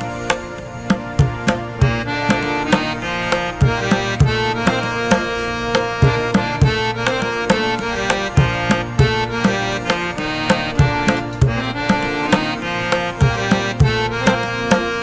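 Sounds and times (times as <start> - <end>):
instrumental music with percussive beat: 0.0 - 15.0.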